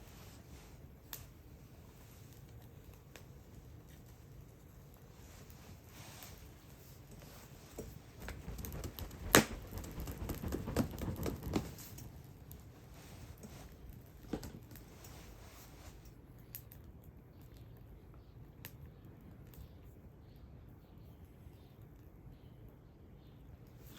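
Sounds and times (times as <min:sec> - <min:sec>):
wood fire crackling and popping: 0:07.1 - 0:12.7.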